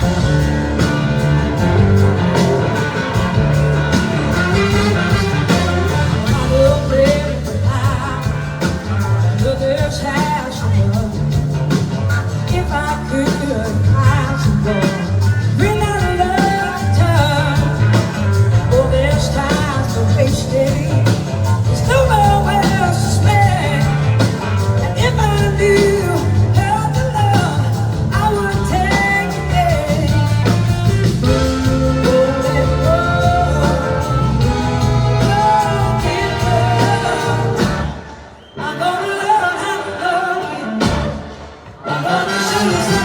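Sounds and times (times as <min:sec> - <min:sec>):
blues-rock band playing live: 0:00.0 - 0:43.0
person singing: 0:12.4 - 0:43.0.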